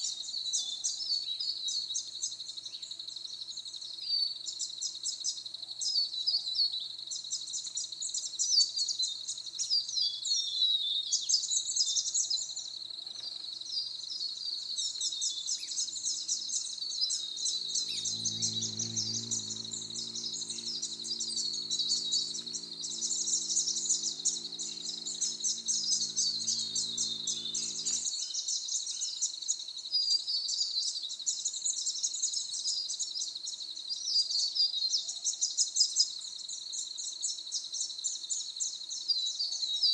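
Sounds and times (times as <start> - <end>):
birds chirping: 14.8 - 28.2
high insect buzz: 14.8 - 28.2
low droning hum: 17.4 - 28.0.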